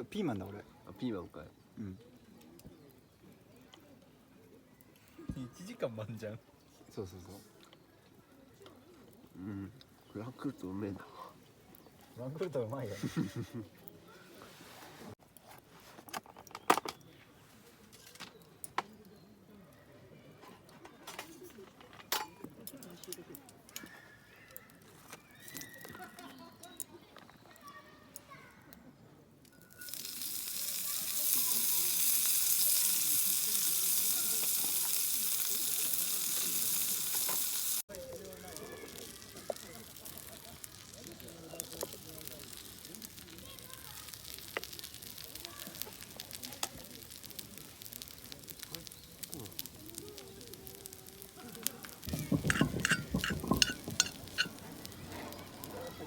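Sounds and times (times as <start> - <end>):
food sizzling in a pan: 29.6 - 56.0
tableware clattering and clinking: 52.1 - 54.6.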